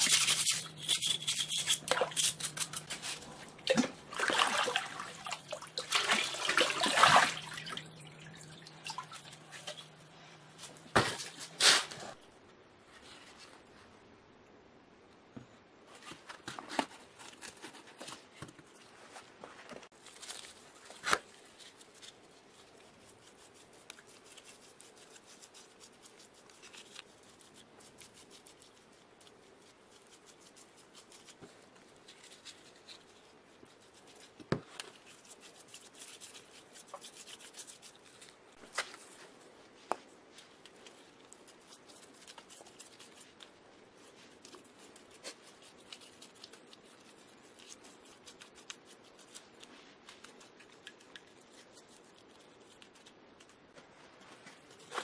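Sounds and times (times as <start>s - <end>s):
faint rubbing and scratching: 15.8s - 55.0s.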